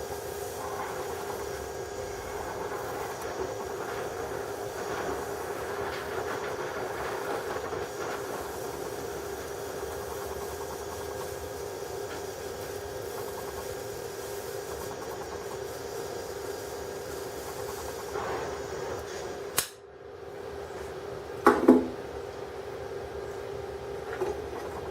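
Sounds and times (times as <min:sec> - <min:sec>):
welding station hissing: 0:00.0 - 0:19.8
constant hum: 0:00.0 - 0:24.9.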